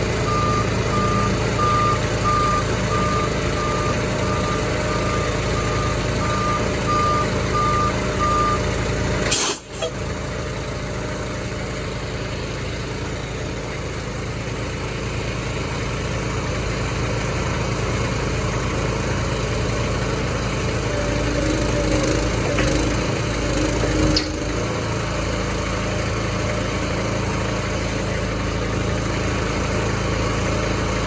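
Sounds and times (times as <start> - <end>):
truck engine running: 0.0 - 31.0
reversing alarm beeping: 0.2 - 8.7.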